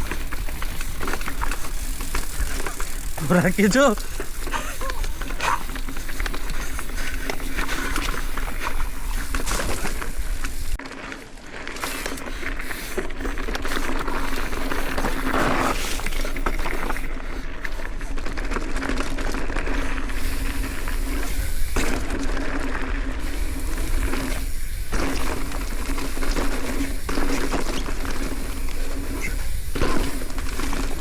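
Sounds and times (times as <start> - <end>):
bicycle rolling on a trail: 0.0 - 31.0.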